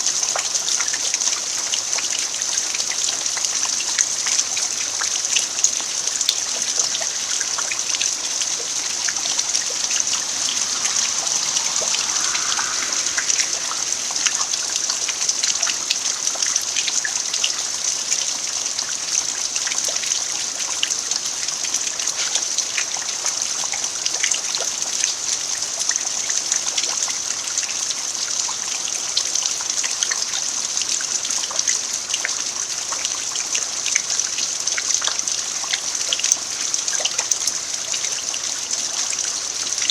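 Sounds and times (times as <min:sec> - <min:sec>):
rain falling on earth: 0:00.0 - 0:26.9
trickle of running water: 0:00.0 - 0:39.9.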